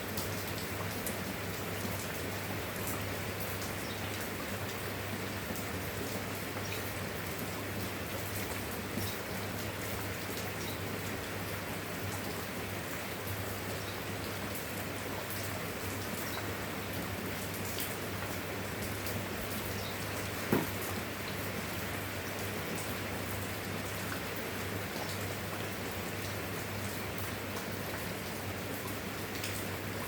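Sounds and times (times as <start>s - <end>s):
steady rain falling: 0.0s - 30.0s
knock: 20.5s - 20.8s.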